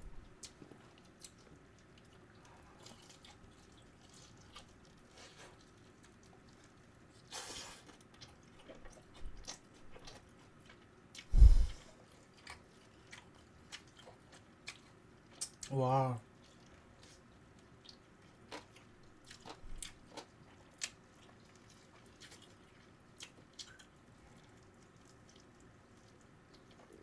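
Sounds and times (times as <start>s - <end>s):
chewing and biting chicken: 0.2s - 15.7s, 16.3s - 27.0s
noisy rustle: 11.3s - 11.8s.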